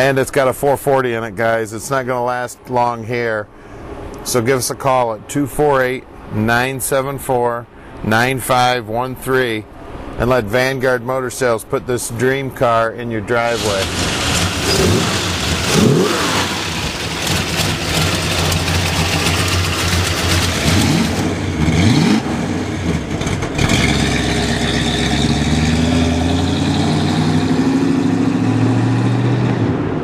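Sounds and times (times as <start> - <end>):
car engine revving and pulling away: 13.6 - 30.0.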